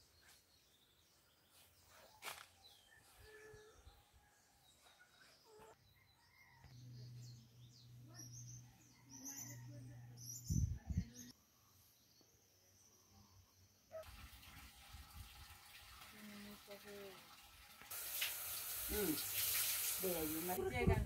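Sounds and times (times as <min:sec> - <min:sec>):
birds chirping: 0:00.0 - 0:13.7
running water in a basin: 0:13.9 - 0:20.6.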